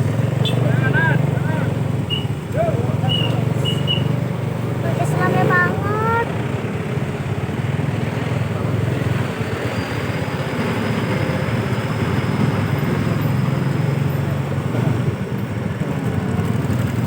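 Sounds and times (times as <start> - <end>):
dense street din: 0.0 - 17.0
vehicle engine running: 0.0 - 17.0.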